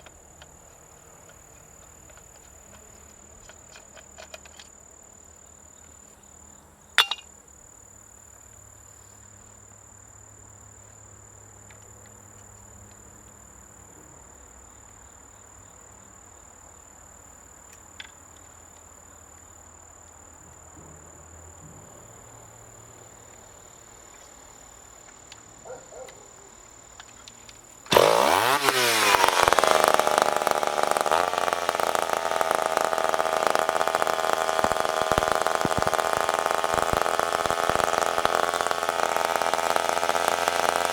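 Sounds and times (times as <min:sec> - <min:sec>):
crickets chirping: 0:00.0 - 0:39.9
chainsaw revving: 0:27.9 - 0:40.9.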